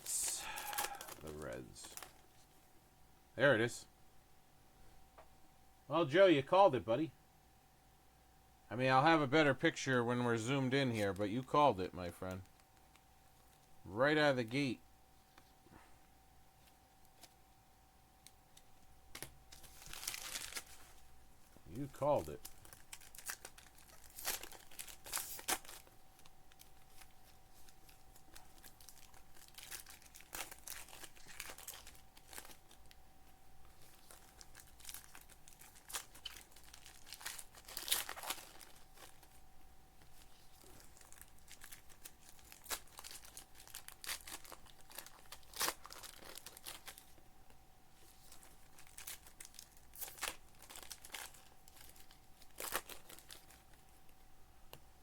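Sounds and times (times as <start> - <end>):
foil wrappers crinkling and tearing: 0.0 - 2.3, 19.1 - 21.0, 21.7 - 33.0, 33.6 - 39.4, 40.0 - 47.2, 48.0 - 54.8
faint steady hum: 0.0 - 55.0.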